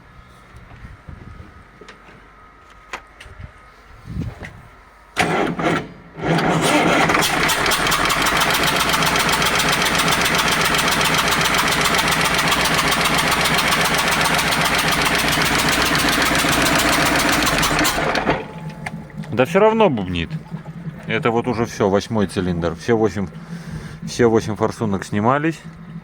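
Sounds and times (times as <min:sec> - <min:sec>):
engine starter cranking: 0:05.2 - 0:19.6
diesel engine running: 0:05.2 - 0:26.0.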